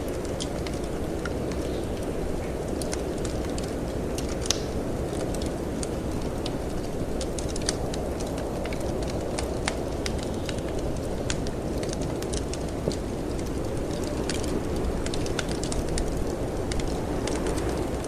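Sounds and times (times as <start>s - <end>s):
low rush of wind: 0.0s - 18.0s
wood fire crackling: 0.0s - 18.0s.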